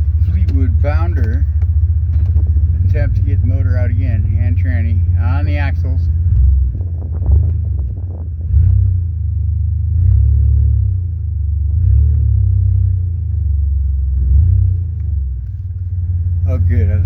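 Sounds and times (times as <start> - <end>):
vehicle engine idling: 0.0 - 10.0, 13.8 - 17.0.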